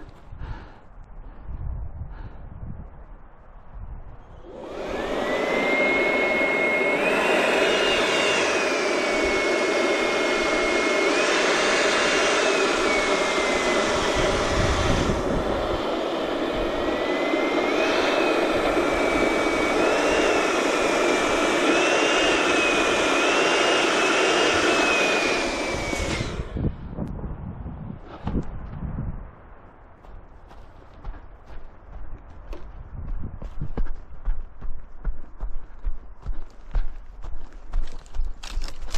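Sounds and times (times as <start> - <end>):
electric balloon inflator whining: 4.3 - 26.8.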